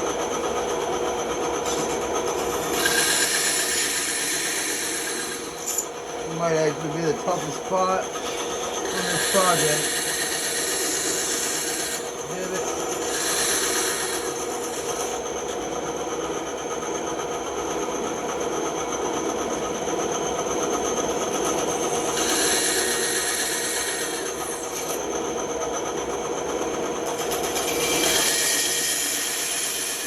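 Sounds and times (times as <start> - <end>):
bandsaw cutting wood: 2.5 - 15.2, 21.7 - 25.0, 27.2 - 30.0.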